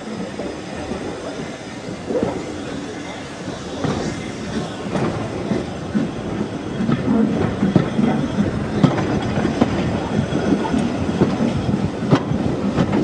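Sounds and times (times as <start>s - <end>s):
rumble of wheels on rails: 0.0s - 13.0s
clacks over rail joints: 3.8s - 13.0s.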